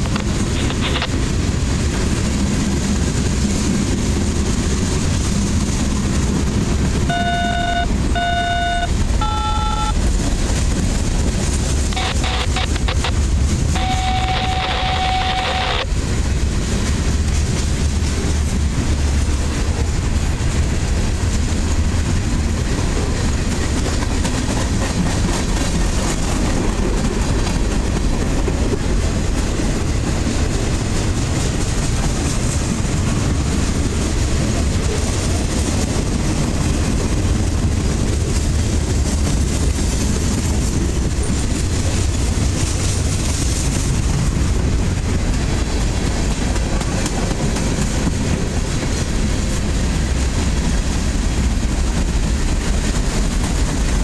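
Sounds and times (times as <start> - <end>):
train wheels rumbling on rails: 0.0 - 54.0
brief steady tone: 7.1 - 10.0, 11.9 - 15.9.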